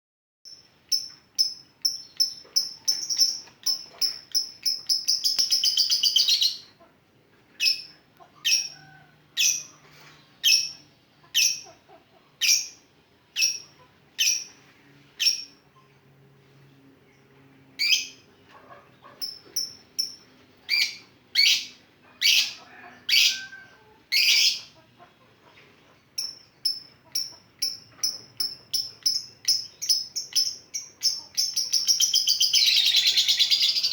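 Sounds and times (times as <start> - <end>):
lovebird chirping and trilling: 0.5 - 6.7, 7.6 - 8.8, 9.4 - 9.8, 10.4 - 11.8, 12.4 - 12.8, 13.4 - 14.6, 15.2 - 15.6, 17.8 - 18.3, 19.0 - 23.5, 24.1 - 24.7, 26.2 - 33.9.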